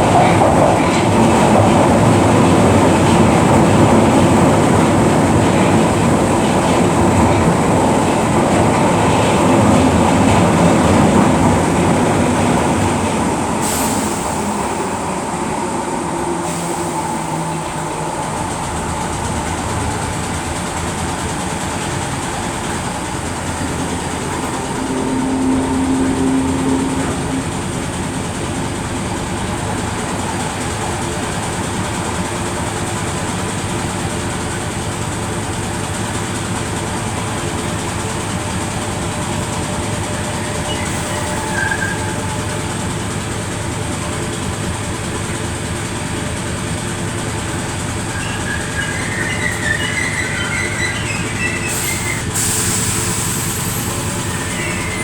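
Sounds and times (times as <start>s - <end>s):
electric train rumbling on track: 0.0s - 55.0s.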